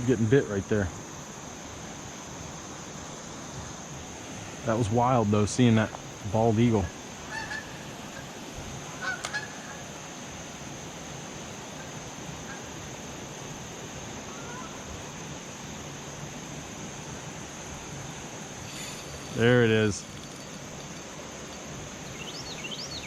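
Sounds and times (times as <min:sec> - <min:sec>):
outdoor hiss: 0:00.0 - 0:23.0
honk-like calls: 0:07.3 - 0:08.3, 0:09.0 - 0:09.8.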